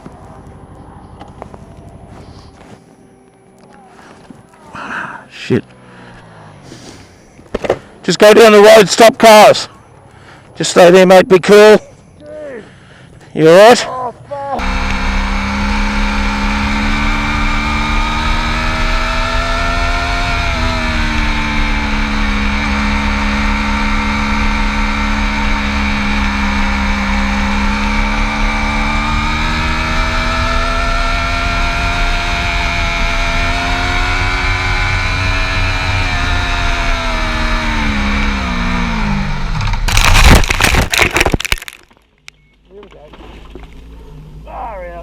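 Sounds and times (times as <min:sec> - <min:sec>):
motorcycle engine riding: 0:14.6 - 0:41.8.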